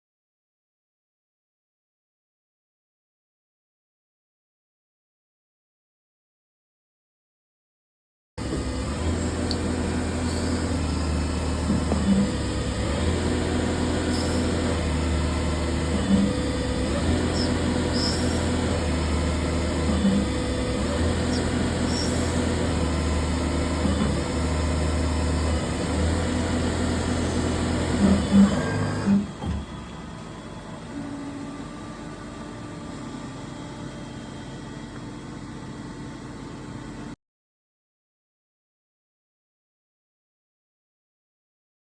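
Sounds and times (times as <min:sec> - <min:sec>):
lathe machine hum: 0:08.4 - 0:36.8.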